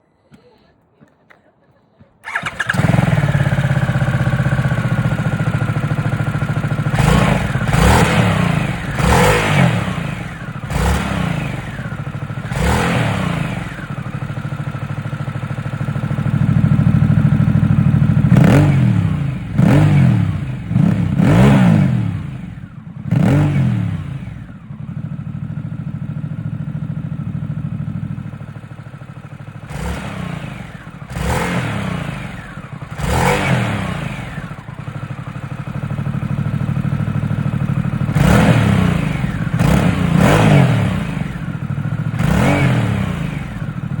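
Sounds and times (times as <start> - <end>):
motorcycle engine idling and revving: 2.2 - 44.0.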